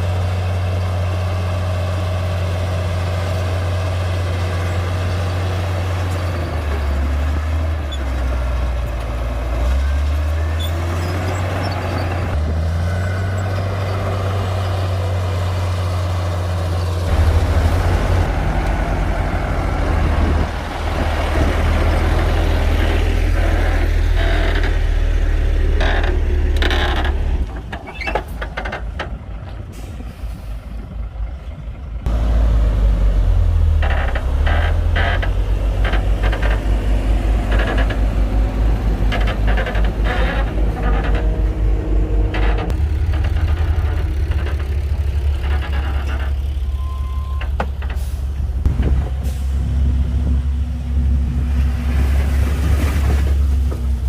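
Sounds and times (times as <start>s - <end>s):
bulldozer diesel engine running: 0.0s - 54.0s
engine knocks: 17.1s - 29.7s, 33.7s - 51.4s.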